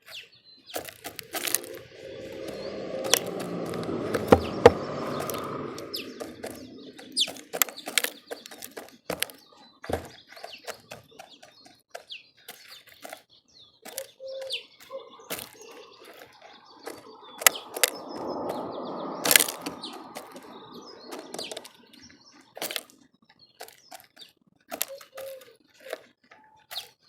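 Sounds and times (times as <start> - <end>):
small birds chirping: 0.0 - 27.0
wings fluttering: 0.7 - 11.5, 15.3 - 22.9.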